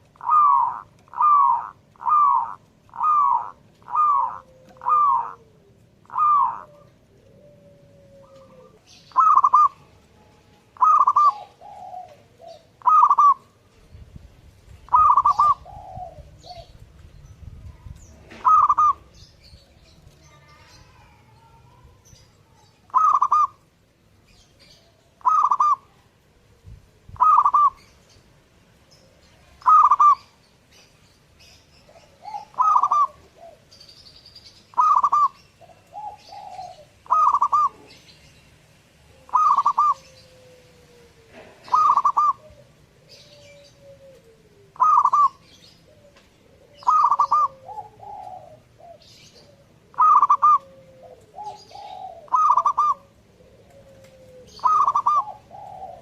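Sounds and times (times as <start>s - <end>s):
dove cooing: 0.0s - 23.7s, 24.3s - 28.2s, 28.8s - 38.3s, 39.0s - 56.0s
faint high bird chirps: 16.4s - 23.6s, 29.0s - 33.2s, 33.8s - 38.3s, 39.2s - 40.3s, 41.7s - 42.5s, 43.1s - 50.7s, 54.0s - 56.0s.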